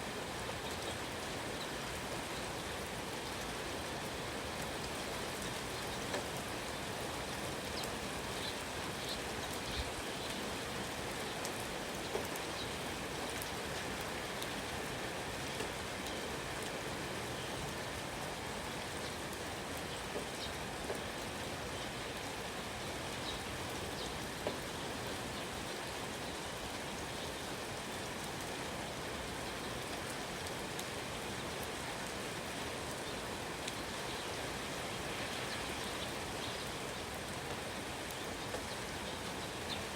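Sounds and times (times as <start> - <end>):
steady rain hissing: 0.0 - 39.9
raindrops ticking: 4.0 - 26.0.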